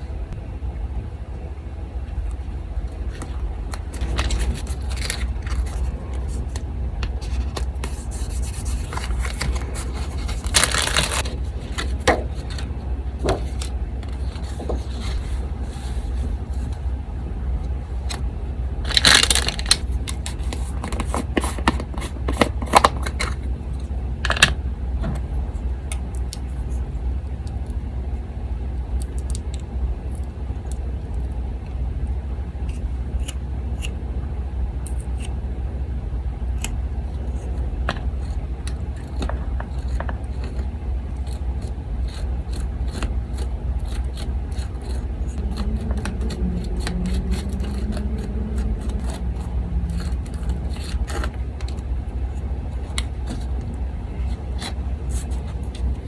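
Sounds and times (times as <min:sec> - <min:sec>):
electric fan hum: 0:00.0 - 0:56.0
paper rustling and shuffling: 0:03.0 - 0:16.8, 0:18.9 - 0:23.4.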